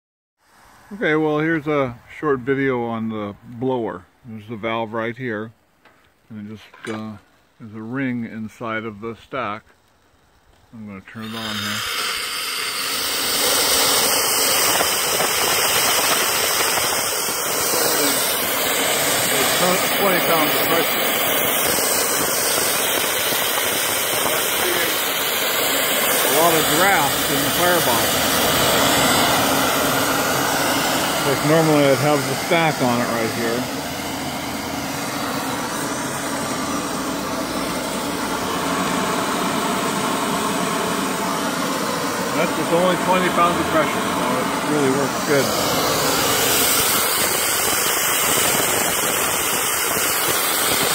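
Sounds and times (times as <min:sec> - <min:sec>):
steam jet hissing: 0:11.1 - 0:50.9.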